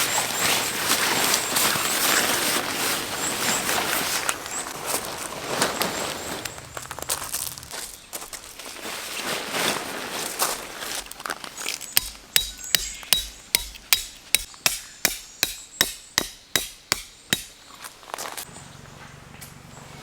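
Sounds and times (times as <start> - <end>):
hammer striking tent stake: 12.0 - 17.6.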